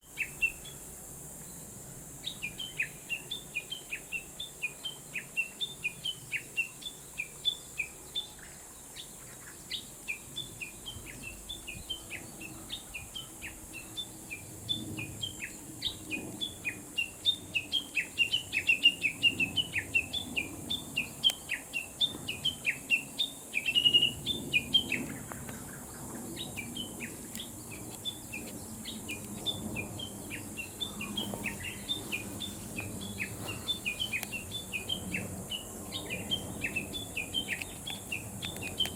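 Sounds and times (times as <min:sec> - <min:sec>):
wild birds chirping: 0:00.0 - 0:38.9.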